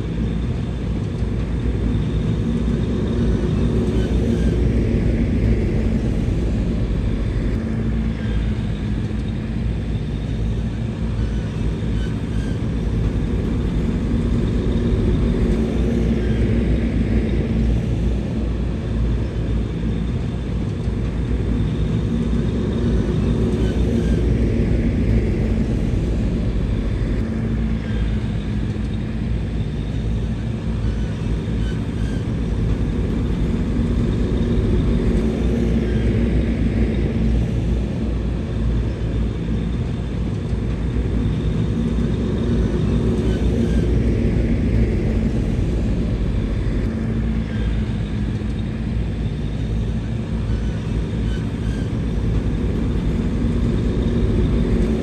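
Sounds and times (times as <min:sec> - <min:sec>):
bulldozer diesel engine rumbling: 0:01.4 - 0:55.0.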